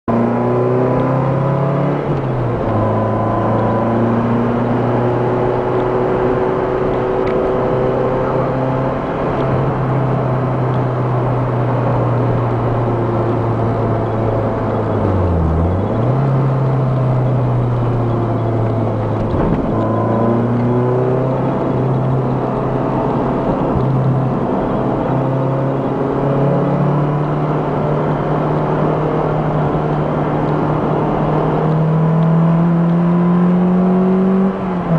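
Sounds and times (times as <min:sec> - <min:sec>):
car engine revving: 0:00.1 - 0:34.9.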